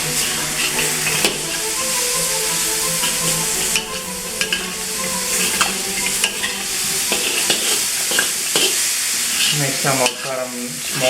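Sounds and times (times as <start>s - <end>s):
spatula clacking and scraping pan: 0.0s - 8.8s
vegetables sizzling in a wok: 0.0s - 11.0s.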